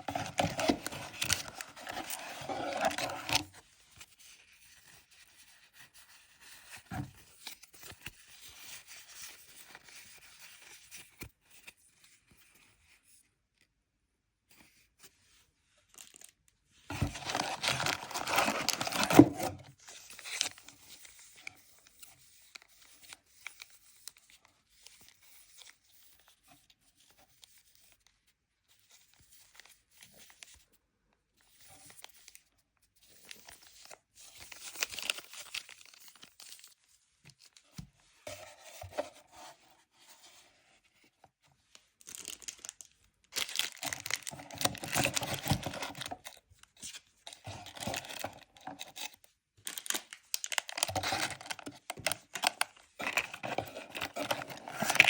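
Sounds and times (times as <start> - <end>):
packaging rustling and crinkling: 0.0 - 3.6, 15.9 - 20.9, 33.2 - 36.8, 41.8 - 55.0
packaging tearing: 17.2 - 19.5, 43.4 - 46.1, 47.5 - 55.0.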